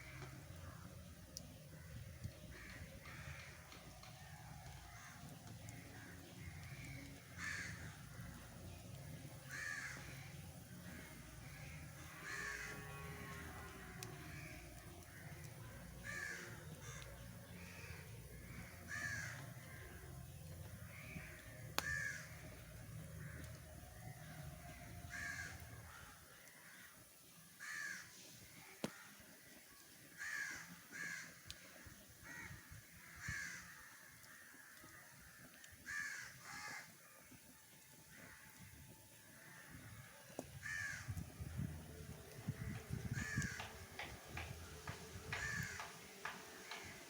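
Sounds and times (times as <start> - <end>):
crows cawing: 0.0 - 27.0, 27.6 - 29.2, 30.2 - 37.2, 38.1 - 47.0
sharp clicks: 42.7 - 47.0.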